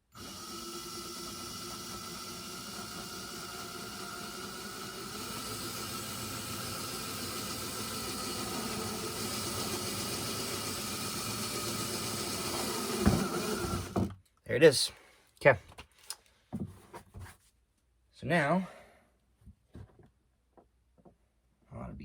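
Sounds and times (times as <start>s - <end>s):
drill grinding plastic: 0.0s - 14.1s
drill motor whine: 0.1s - 14.1s.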